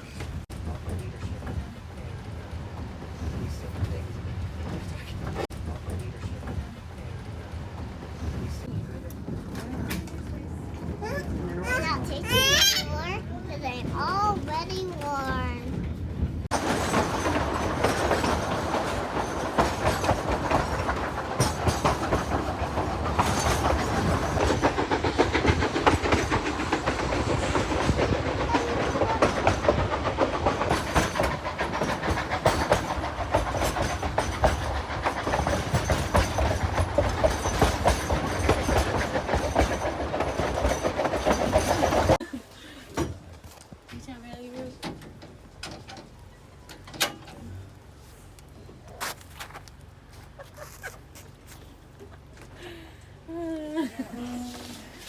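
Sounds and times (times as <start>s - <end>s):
train wheels clickety-clack: 0.0s - 47.5s
train cars rattling: 0.0s - 55.0s
train rumble: 0.0s - 55.0s.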